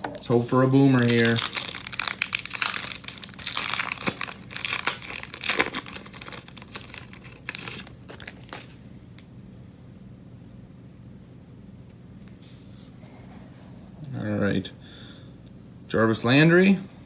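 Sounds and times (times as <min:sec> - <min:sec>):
wrapper tearing and crinkling: 0:00.1 - 0:08.8.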